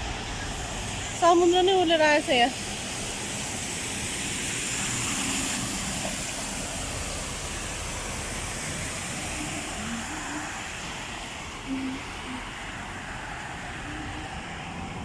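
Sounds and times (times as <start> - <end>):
heavy rain pouring: 0.0 - 15.0
running water: 0.6 - 15.0.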